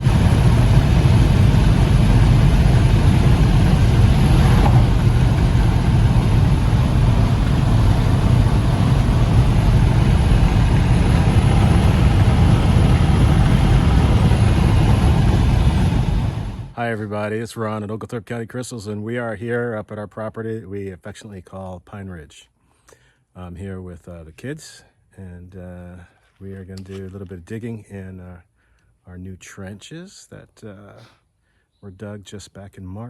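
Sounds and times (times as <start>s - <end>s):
loud low rumbling: 0.0s - 16.8s.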